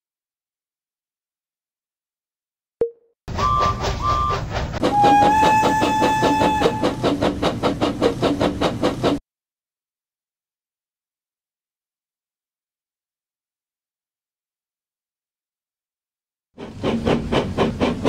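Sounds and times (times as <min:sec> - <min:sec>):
train whistle: 0:03.3 - 0:07.2
steam locomotive chuffing: 0:03.3 - 0:09.2, 0:16.6 - 0:18.0.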